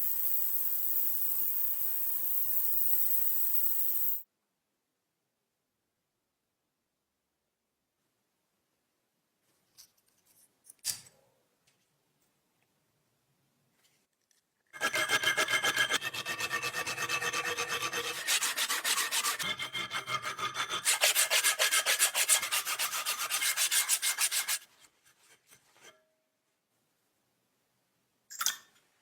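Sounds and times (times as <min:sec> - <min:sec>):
filing or sanding strokes: 0:14.8 - 0:24.7.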